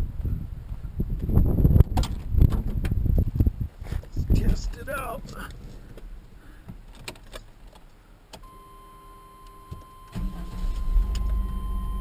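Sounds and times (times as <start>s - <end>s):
steady high tone: 8.4s - 12.0s
wiper motor humming: 8.5s - 12.0s.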